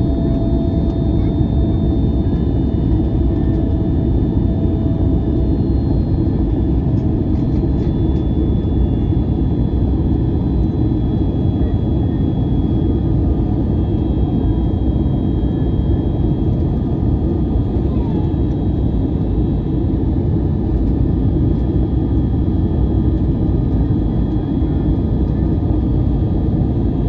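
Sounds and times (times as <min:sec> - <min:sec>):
airplane cabin engine drone: 0:00.0 - 0:27.0.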